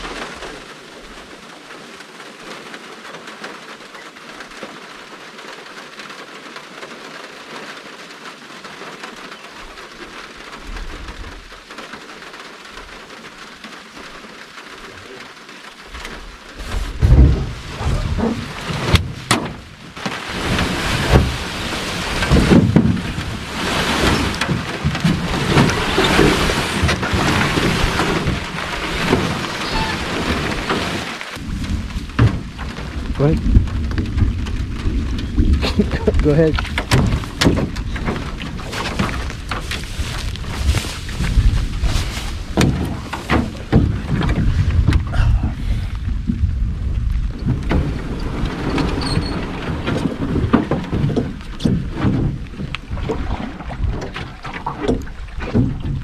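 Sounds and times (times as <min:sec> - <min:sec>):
steady rain falling: 0:00.0 - 0:56.0
thunder rumbling: 0:16.6 - 0:53.9.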